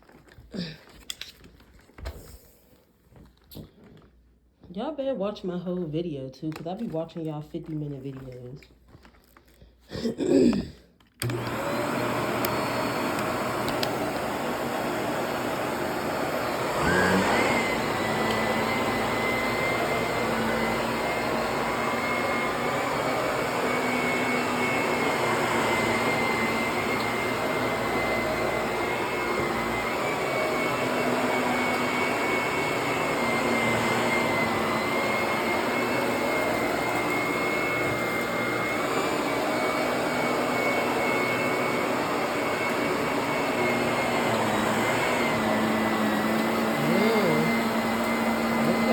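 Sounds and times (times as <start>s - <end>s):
vacuum cleaner running: 11.2s - 48.9s.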